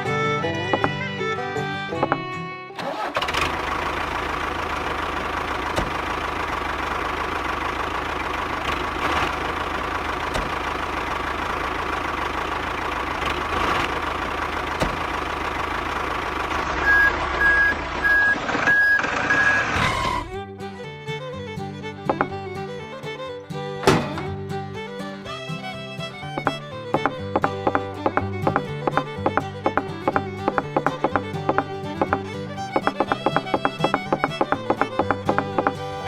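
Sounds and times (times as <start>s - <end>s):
truck engine running: 0.0s - 36.0s
reversing alarm beeps: 16.8s - 19.8s.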